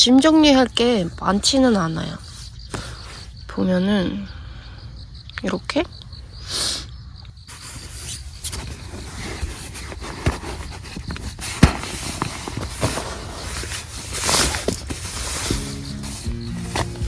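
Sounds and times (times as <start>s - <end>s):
gear rustling: 7.5s - 17.0s.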